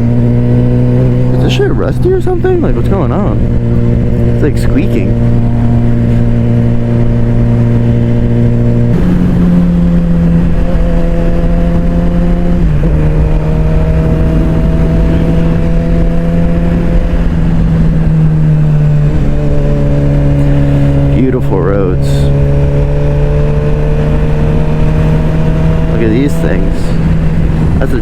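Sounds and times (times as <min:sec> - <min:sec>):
motorcycle engine running: 0:00.0 - 0:28.0
wind noise: 0:05.1 - 0:21.1, 0:22.2 - 0:28.0.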